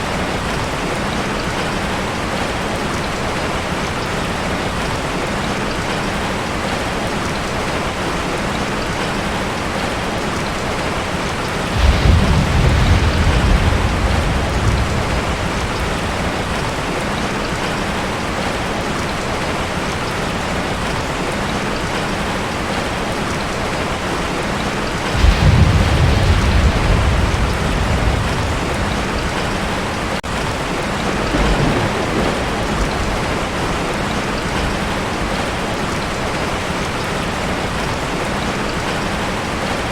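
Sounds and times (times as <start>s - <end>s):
heavy rain on a tin roof: 0.0s - 39.9s
thunder rumbling: 11.3s - 18.6s, 24.6s - 37.8s.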